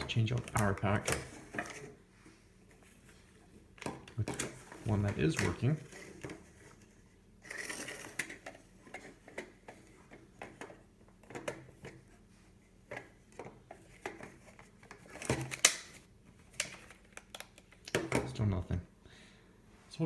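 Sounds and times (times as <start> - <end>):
plastic clicks and rattles: 12.9 - 18.3.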